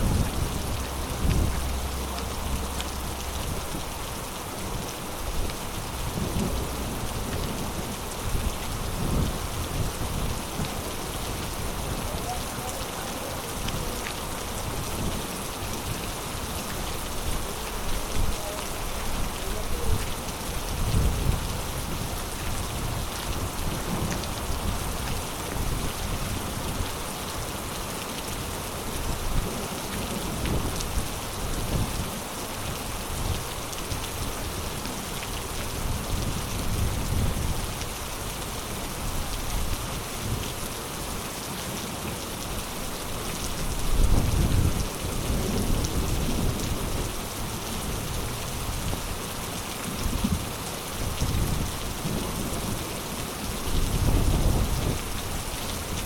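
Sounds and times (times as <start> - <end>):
low thunder rumbles: 0.0 - 12.8
heavy rain falling: 0.0 - 56.0.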